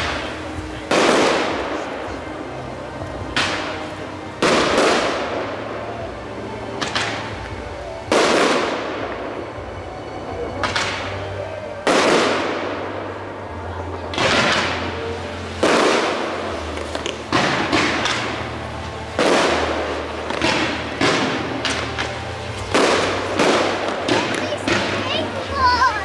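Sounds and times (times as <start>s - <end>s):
firework shells bursting: 15.6s - 25.0s.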